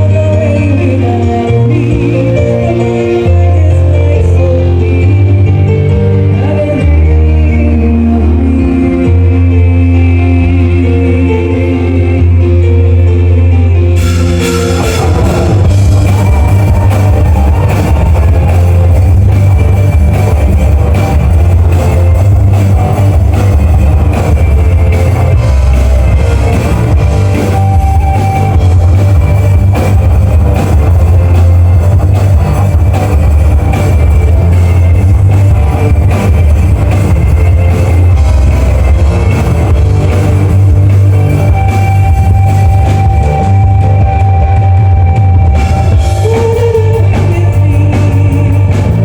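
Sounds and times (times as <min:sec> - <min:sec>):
electric guitar: 0:00.0 - 0:49.0
heavy steady bass: 0:00.0 - 0:49.0
loud rock music: 0:00.0 - 0:49.0
drum kit: 0:13.9 - 0:49.0.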